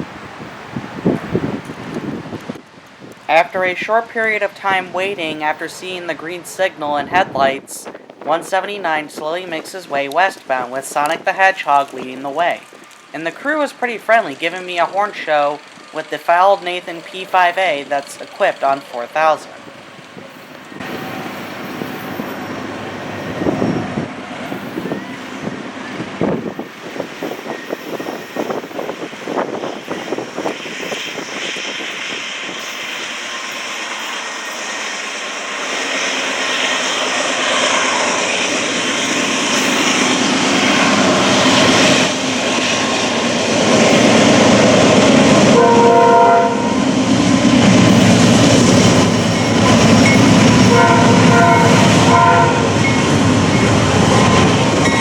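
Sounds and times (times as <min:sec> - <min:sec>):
locomotive engine and train rumble: 0:00.0 - 0:55.0
train horn chord: 0:45.4 - 0:46.9, 0:50.5 - 0:52.9.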